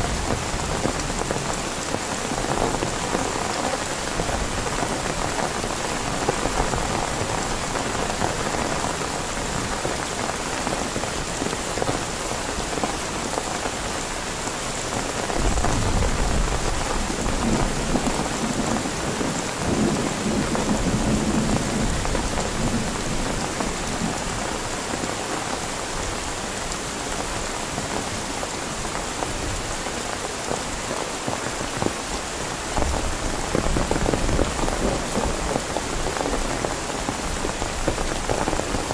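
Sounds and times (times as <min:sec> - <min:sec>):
heavy rain: 0:00.0 - 0:38.9
thunder rumbling: 0:15.3 - 0:24.2.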